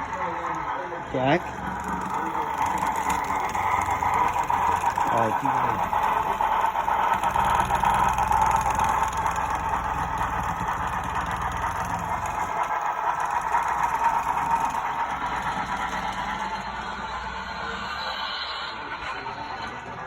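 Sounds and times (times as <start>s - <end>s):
model train running: 0.0s - 20.0s.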